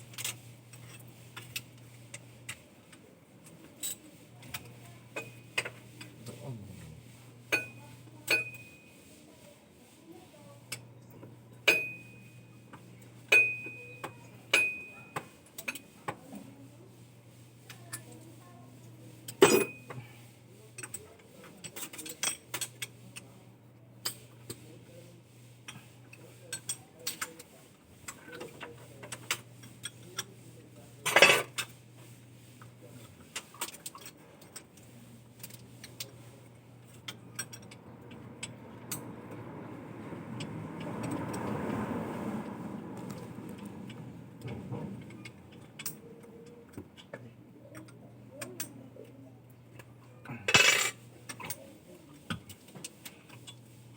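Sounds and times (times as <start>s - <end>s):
metal tools clinking: 50.4s - 51.6s.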